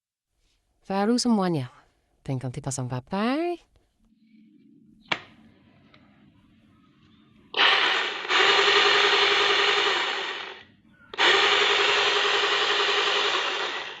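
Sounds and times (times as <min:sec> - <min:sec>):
mini chainsaw running: 0:07.6 - 0:10.6, 0:11.2 - 0:14.0.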